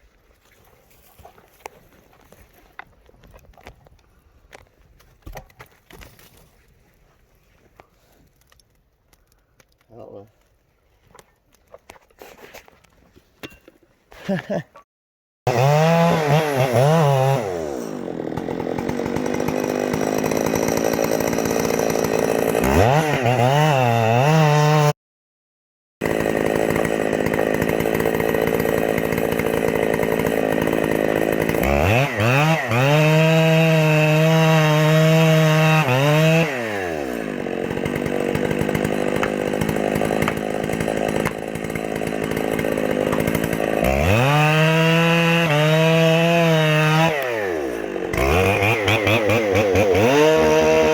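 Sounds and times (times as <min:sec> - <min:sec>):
chainsaw cutting and revving: 0:15.5 - 0:25.0, 0:26.0 - 0:50.9.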